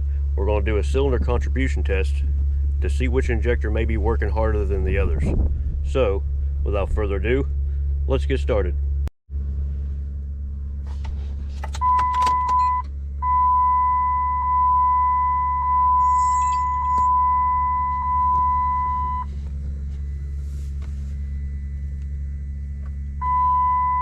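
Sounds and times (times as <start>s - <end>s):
steady low hum: 0.0s - 24.0s
vehicle warning chime: 11.8s - 19.3s, 23.2s - 24.0s.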